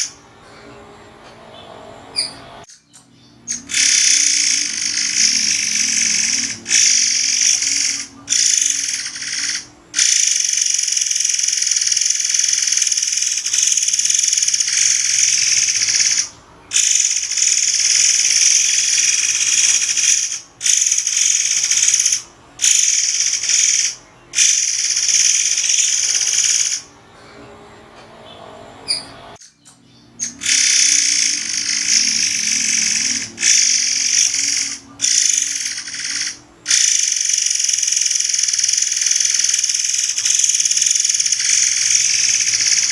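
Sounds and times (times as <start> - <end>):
songbird trilling: 1.6 - 26.9, 28.9 - 42.9.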